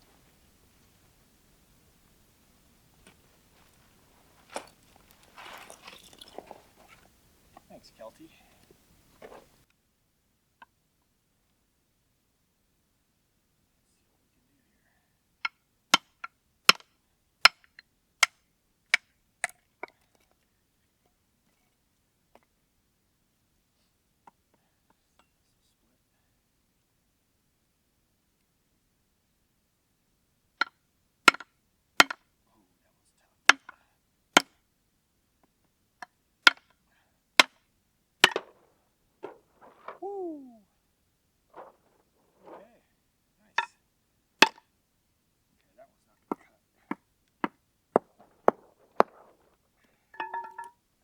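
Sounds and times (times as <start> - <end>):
axe chopping firewood: 36.5 - 36.7, 38.2 - 40.1, 47.4 - 49.6.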